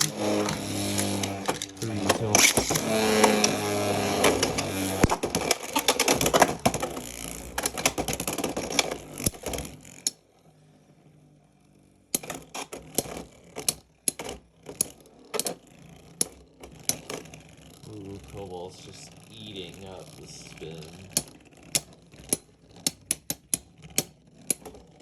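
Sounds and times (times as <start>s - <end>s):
spinning tops clattering and scraping: 0.0s - 10.2s.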